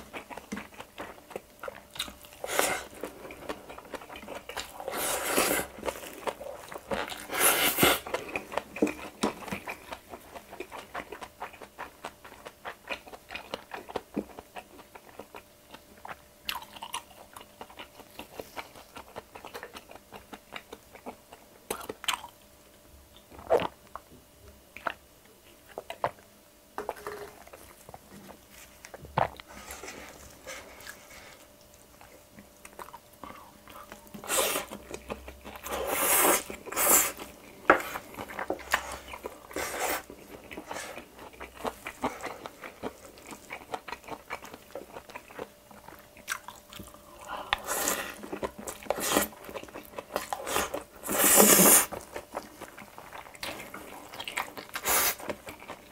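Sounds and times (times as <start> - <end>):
dense chewing: 26.9 - 55.9.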